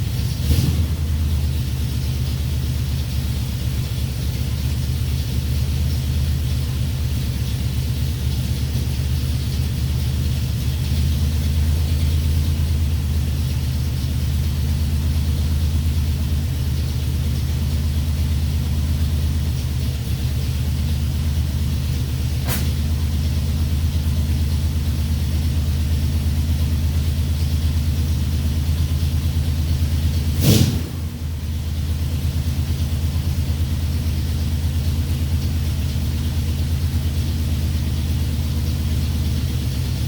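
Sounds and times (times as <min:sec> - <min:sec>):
engine idling: 0:00.0 - 0:40.0
short sharp click: 0:22.4 - 0:22.8.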